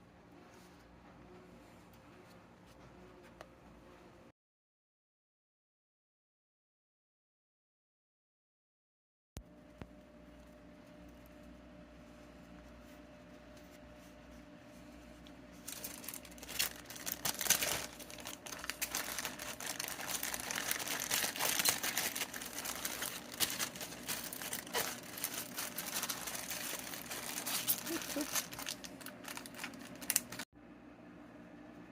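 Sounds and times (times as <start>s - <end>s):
plastic bag crinkling: 15.6s - 30.5s.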